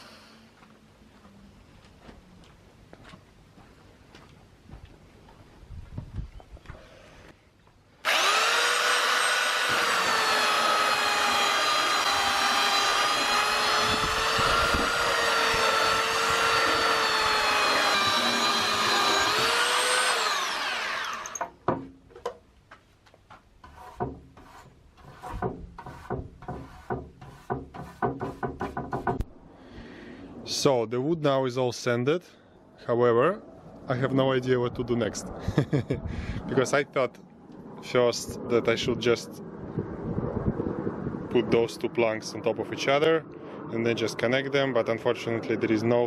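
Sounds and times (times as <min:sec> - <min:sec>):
power sander on wood: 0:08.0 - 0:21.4
sharp clicks and knocks: 0:25.3 - 0:29.3.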